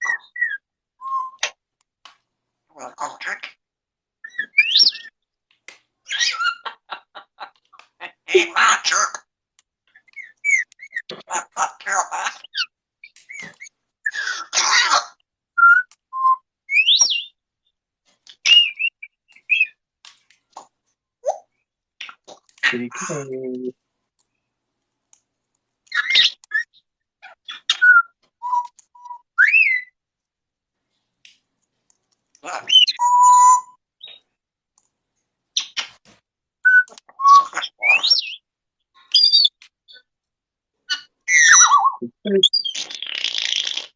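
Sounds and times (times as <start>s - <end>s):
parrot squawking: 2.8s - 3.6s, 6.1s - 7.4s, 32.4s - 33.6s, 40.9s - 43.9s
click: 25.1s - 26.5s, 34.8s - 35.0s
parrot whistling: 32.7s - 33.8s.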